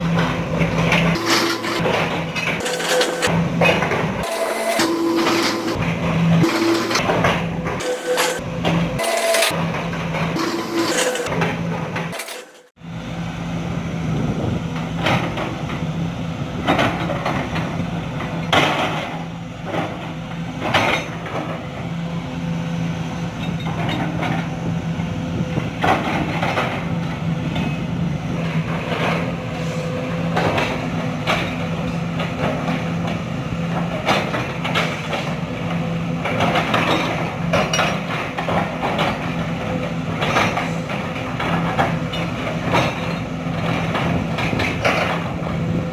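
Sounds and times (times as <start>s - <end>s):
excavator diesel engine running: 0.0s - 45.9s
metallic knocks and clanks: 0.1s - 12.7s, 28.4s - 45.8s.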